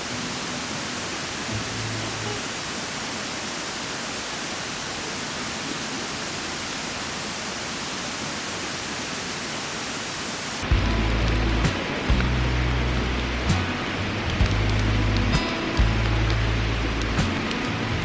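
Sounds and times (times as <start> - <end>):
steady hissing noise: 0.0 - 18.0
background music with bass line: 10.7 - 18.0.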